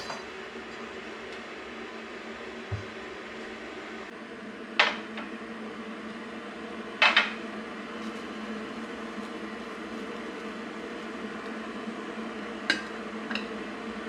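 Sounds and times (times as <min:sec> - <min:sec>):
dishes clinking: 0:00.0 - 0:00.3.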